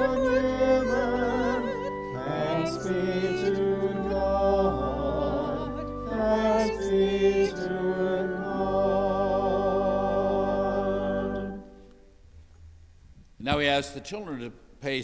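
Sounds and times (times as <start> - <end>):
person singing with vibrato: 0.0 - 11.8
low sustained keyboard: 0.0 - 12.2.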